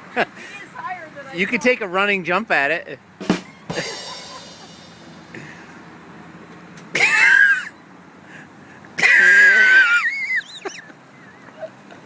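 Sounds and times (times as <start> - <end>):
person squealing: 9.0 - 10.3.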